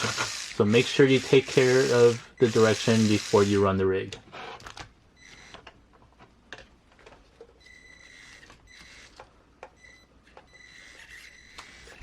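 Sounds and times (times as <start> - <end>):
small electric motor whining: 0.0 - 3.7, 7.8 - 9.2, 10.6 - 12.0.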